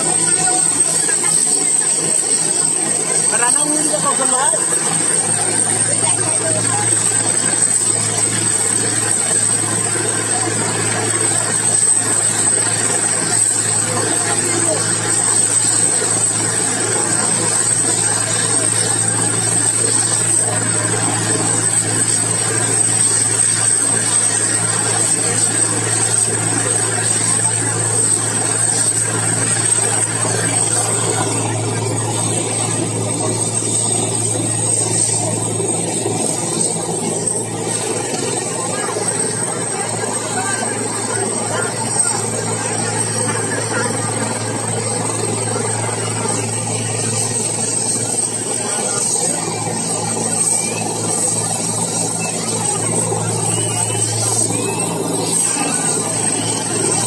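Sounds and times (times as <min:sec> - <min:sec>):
helicopter engine running: 0:00.0 - 0:57.0
high whine: 0:00.0 - 0:57.0.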